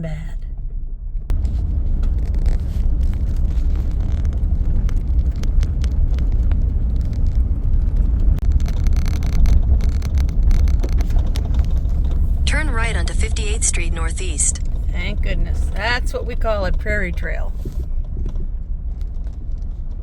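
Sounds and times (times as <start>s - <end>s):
tyre rumble on dirt road: 1.3s - 12.5s, 17.5s - 20.0s
small clicks and rattles: 2.0s - 12.4s.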